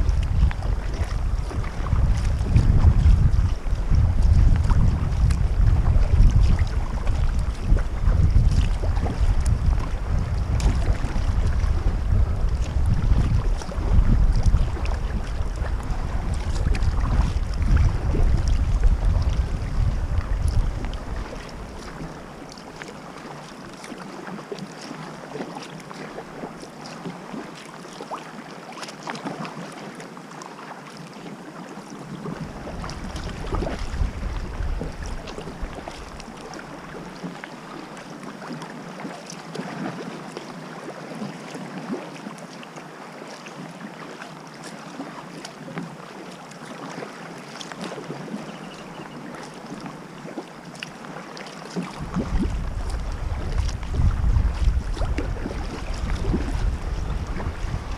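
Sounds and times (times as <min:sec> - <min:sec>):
wind buffeting microphone: 0:00.0 - 0:22.4, 0:32.3 - 0:36.3, 0:51.9 - 0:57.9
paddle splashing water: 0:00.0 - 0:57.9.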